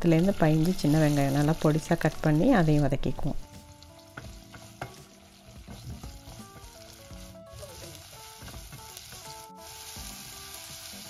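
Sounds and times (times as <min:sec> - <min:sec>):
shallots sizzling in oil: 0:00.0 - 0:11.0
spatula stirring in pan: 0:04.0 - 0:11.0.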